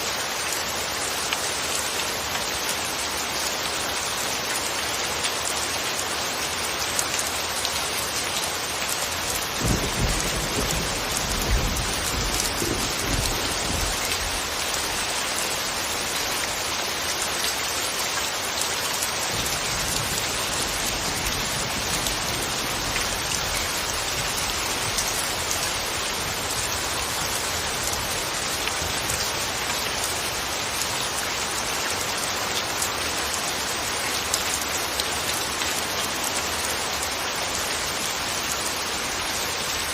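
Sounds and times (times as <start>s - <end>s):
steady rain falling: 0.0s - 39.9s
distant thunder rumble: 9.6s - 14.4s.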